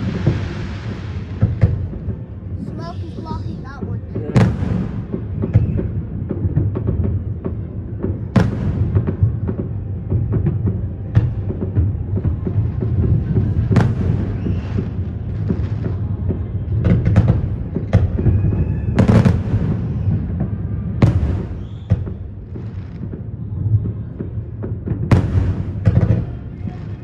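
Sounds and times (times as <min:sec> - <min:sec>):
distant fireworks rumble: 0:00.0 - 0:27.0
fireworks bangs: 0:00.0 - 0:27.0.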